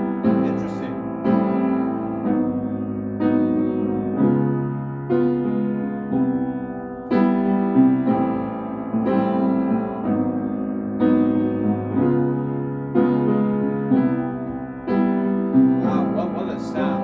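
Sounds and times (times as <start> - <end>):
piano playing jazz chords: 0.0 - 17.0.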